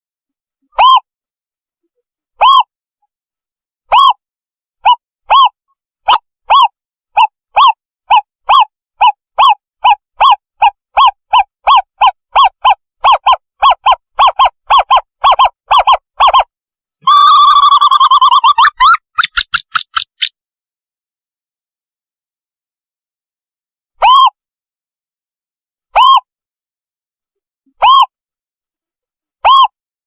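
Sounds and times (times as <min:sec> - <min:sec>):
owl hooting: 0:04.9 - 0:20.3.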